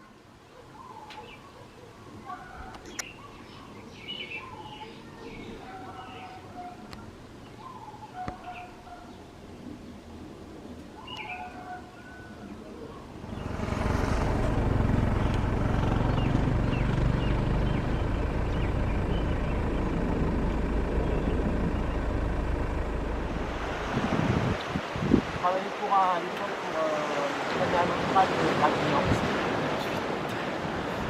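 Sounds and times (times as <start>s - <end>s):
jet engines rumbling: 13.1s - 31.0s.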